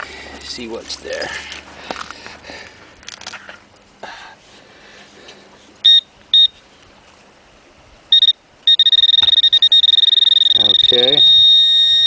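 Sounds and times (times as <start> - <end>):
metal detector pinpointer beeping: 5.8 - 6.5, 8.1 - 12.0.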